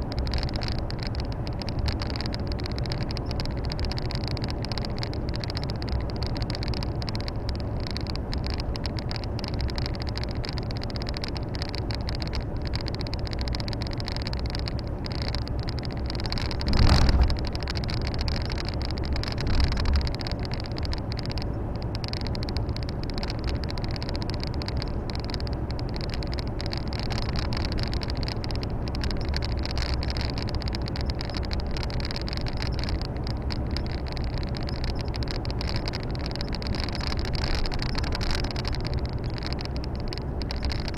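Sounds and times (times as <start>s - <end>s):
diesel engine running: 0.0s - 40.9s
road noise: 0.0s - 40.9s.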